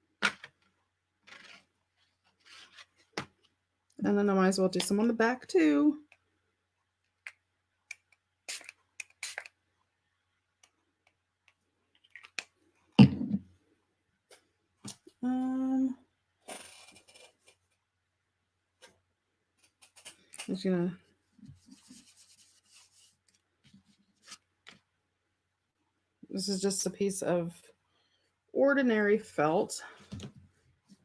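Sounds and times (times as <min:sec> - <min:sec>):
spray bottle hiss: 0:08.5 - 0:09.5.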